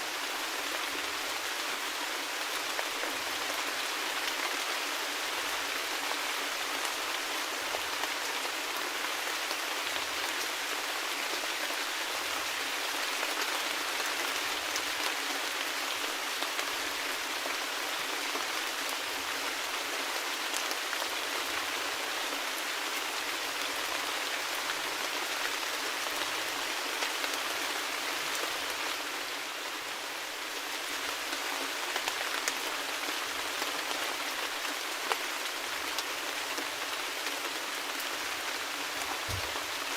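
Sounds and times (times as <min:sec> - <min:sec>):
steady rain falling: 0:00.0 - 0:39.9
raindrops tapping on surfaces: 0:39.0 - 0:39.9.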